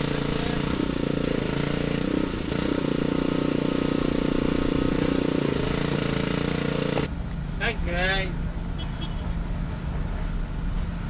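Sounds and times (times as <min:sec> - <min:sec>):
small petrol engine running: 0:00.0 - 0:07.1.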